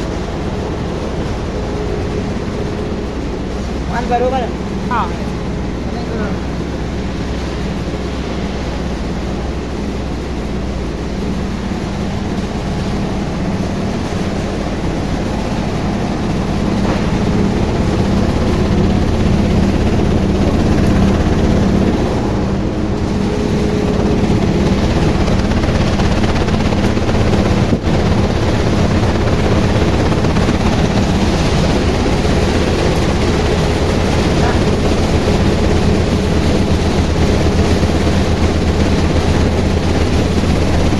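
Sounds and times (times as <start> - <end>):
sorting machine mechanical drone: 0.0 - 40.9.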